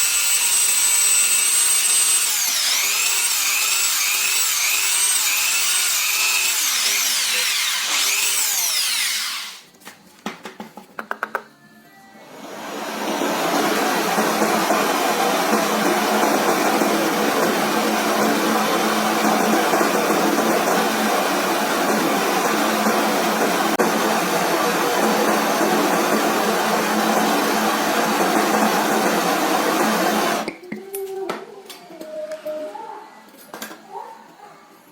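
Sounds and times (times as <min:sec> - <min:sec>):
power tool motor whirring: 0:00.0 - 0:09.7.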